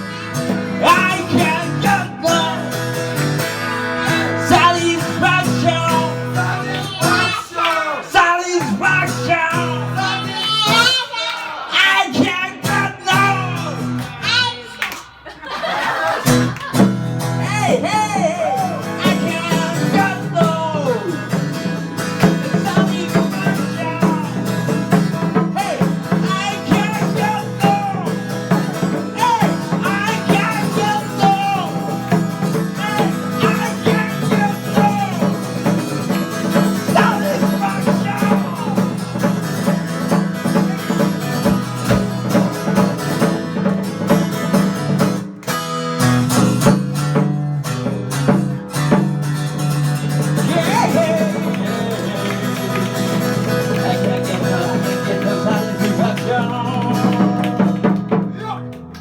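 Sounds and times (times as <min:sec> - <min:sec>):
live band with guitar: 0:00.0 - 0:59.0
person singing: 0:00.7 - 0:14.9, 0:17.4 - 0:35.9, 0:36.6 - 0:39.3, 0:50.4 - 0:58.7.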